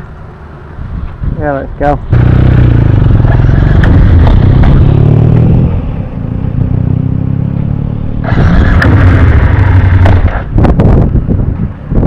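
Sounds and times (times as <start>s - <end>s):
motorcycle engine running: 2.1s - 11.2s.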